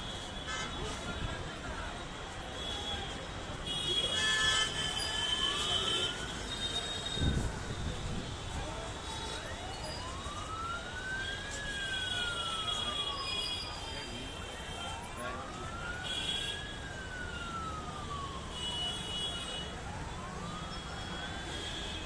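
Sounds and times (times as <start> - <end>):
siren wailing: 4.1 - 8.1, 8.9 - 22.0.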